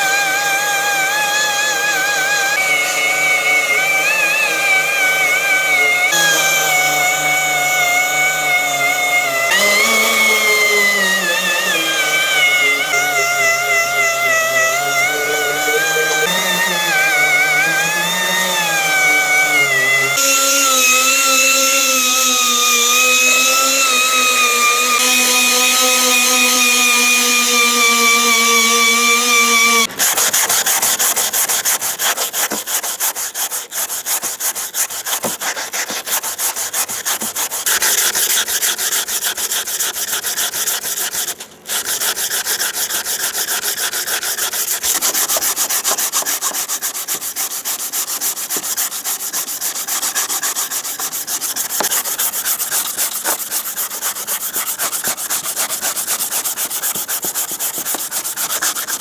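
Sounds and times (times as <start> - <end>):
power tool whining: 0.0 - 33.7, 49.6 - 59.0
abrasive sanding strokes: 0.0 - 59.0.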